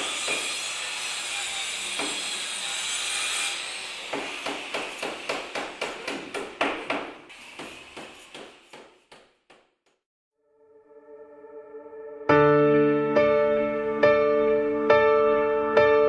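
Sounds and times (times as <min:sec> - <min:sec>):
saw rasping through wood: 0:00.0 - 0:09.2
hammer driving into wood: 0:04.1 - 0:09.7.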